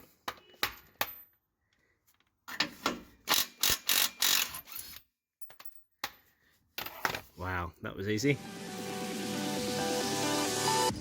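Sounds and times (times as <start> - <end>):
ratchet wrench clicking: 3.3 - 4.8.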